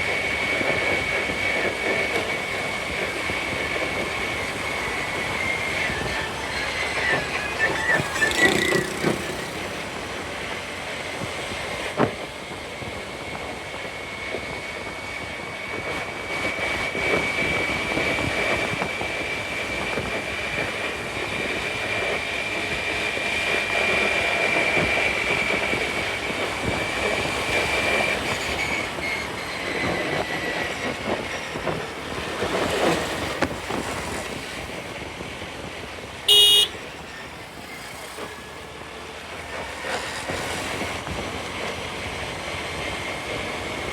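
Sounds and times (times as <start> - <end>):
road and traffic noise: 0.0 - 43.9
wind: 0.0 - 43.9
vehicle horn beep: 36.3 - 37.0.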